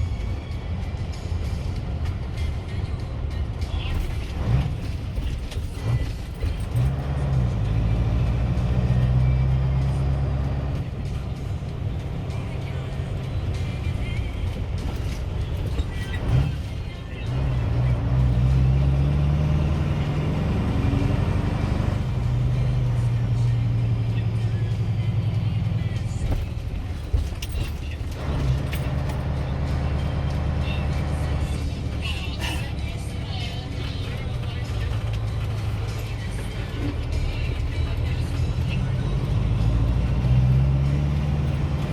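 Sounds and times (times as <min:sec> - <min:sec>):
diesel truck engine running: 0:00.0 - 0:41.9.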